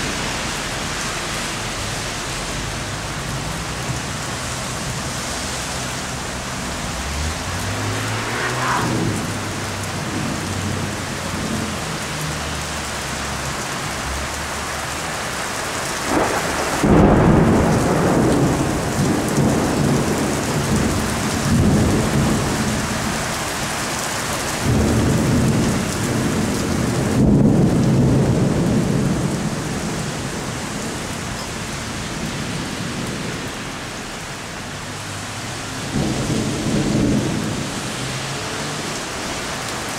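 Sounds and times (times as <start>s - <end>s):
heavy rain: 0.0s - 39.9s
rolling thunder: 6.6s - 11.8s, 16.0s - 23.3s, 24.5s - 31.0s, 35.8s - 38.4s
thunder crack: 7.4s - 10.9s, 16.1s - 22.6s, 24.6s - 29.4s.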